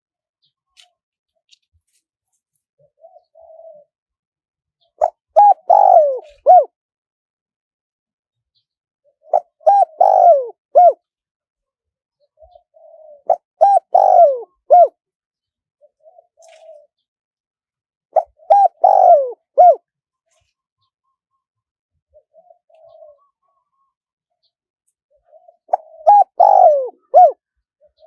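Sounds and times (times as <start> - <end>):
dove cooing: 2.9 - 4.0, 5.0 - 6.8, 9.0 - 11.0, 12.4 - 15.0, 15.8 - 17.0, 18.2 - 19.9, 22.1 - 23.9, 25.1 - 28.0.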